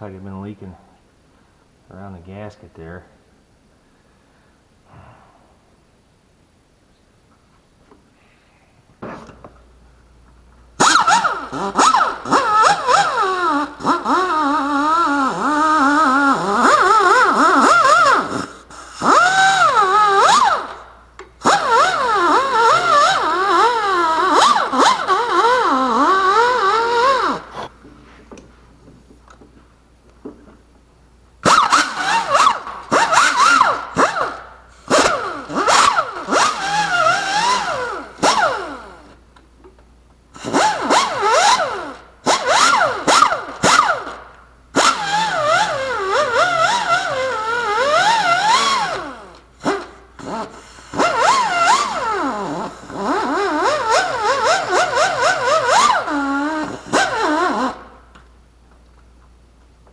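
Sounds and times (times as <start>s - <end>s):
handheld power tool running: 10.8s - 27.7s, 31.4s - 39.2s, 40.4s - 58.0s.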